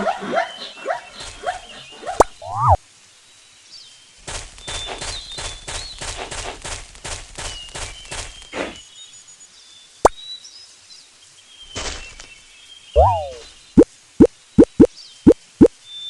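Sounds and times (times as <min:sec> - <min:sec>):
birds chirping: 0:00.0 - 0:02.8, 0:11.6 - 0:15.4
rustling strokes: 0:04.2 - 0:08.8.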